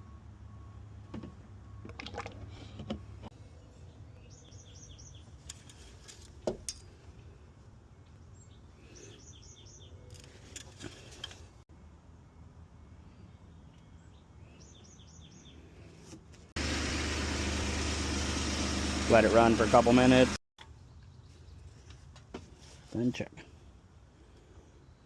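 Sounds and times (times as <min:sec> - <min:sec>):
faint outdoor background noise: 0:00.0 - 0:16.6, 0:20.6 - 0:25.0
bird chirping: 0:03.5 - 0:05.4, 0:07.9 - 0:10.2, 0:12.8 - 0:15.7.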